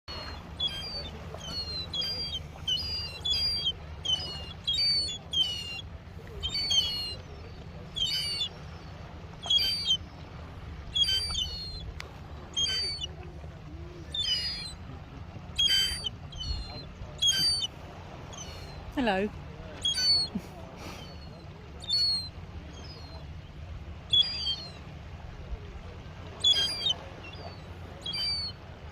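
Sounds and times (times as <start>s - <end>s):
young gull crying: 0.1s - 5.8s, 6.4s - 7.2s, 8.0s - 8.5s, 9.4s - 10.0s, 11.0s - 11.8s, 12.6s - 13.1s, 14.2s - 14.8s, 15.6s - 17.7s, 19.8s - 20.4s, 21.8s - 22.3s, 24.2s - 24.7s, 26.4s - 27.0s, 28.1s - 28.5s.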